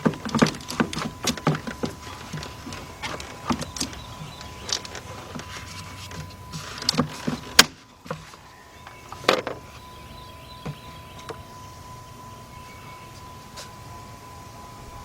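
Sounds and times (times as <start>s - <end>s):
hands rustling: 0.0s - 9.2s
faint steady tone: 0.0s - 15.0s.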